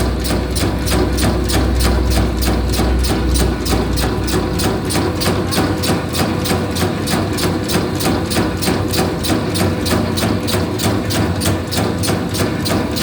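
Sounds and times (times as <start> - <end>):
machine motor humming: 0.0 - 9.7
regular machine clacking: 0.0 - 13.0.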